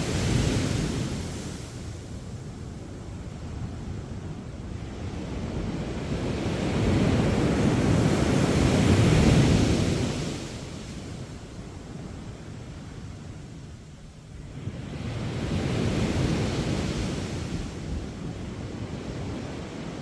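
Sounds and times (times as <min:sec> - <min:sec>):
sea waves crashing on beach: 0:00.0 - 0:03.1
wind on microphone: 0:00.0 - 0:13.5.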